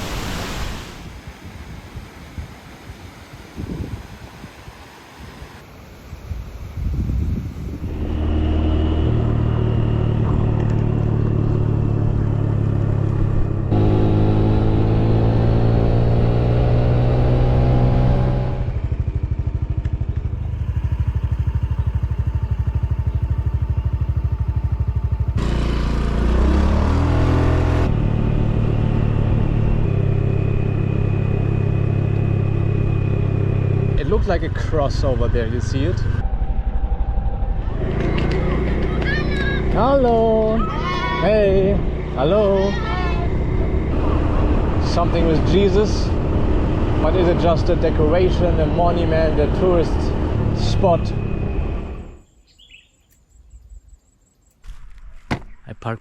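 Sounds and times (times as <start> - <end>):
motorcycle engine running: 7.8 - 52.2.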